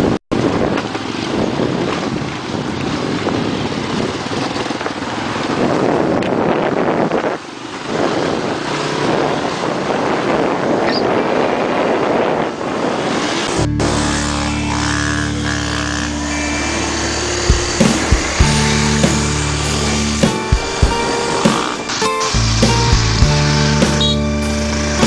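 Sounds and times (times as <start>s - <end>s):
wind buffeting microphone: 0.0s - 13.7s
dirt bike engine: 0.0s - 25.0s.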